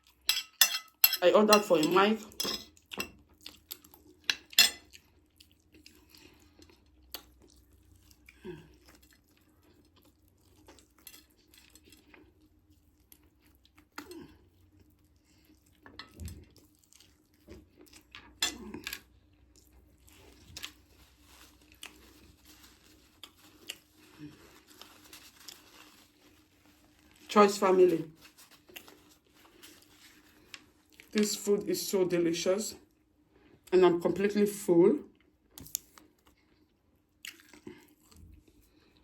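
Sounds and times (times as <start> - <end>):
cutlery clicking on plate: 0.3 - 3.1
person chewing food: 2.7 - 27.3, 28.3 - 31.2, 35.2 - 39.0.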